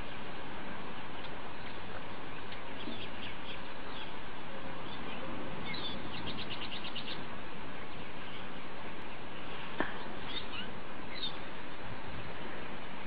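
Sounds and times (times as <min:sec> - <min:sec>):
small birds chirping: 0:00.0 - 0:12.5
outdoor background hiss: 0:00.0 - 0:13.0
bird trill: 0:04.8 - 0:07.2, 0:10.3 - 0:11.4.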